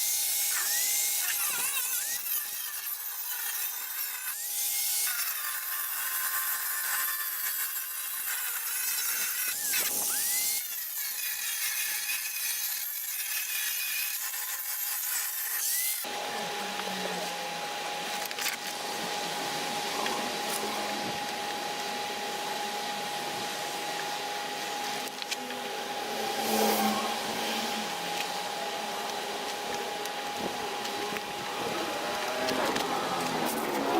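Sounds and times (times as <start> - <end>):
power tool sanding: 0.0 - 33.9.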